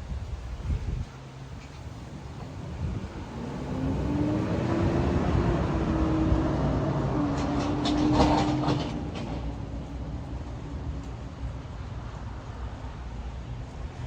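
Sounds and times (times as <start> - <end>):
vehicle engine passing: 3.0 - 9.7.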